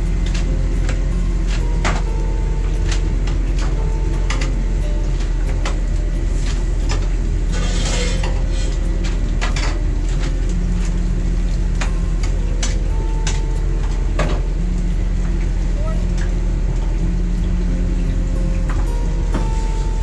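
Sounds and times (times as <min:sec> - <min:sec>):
utensils and pans clinking: 0:00.0 - 0:15.0
steady low rumble: 0:00.0 - 0:20.0.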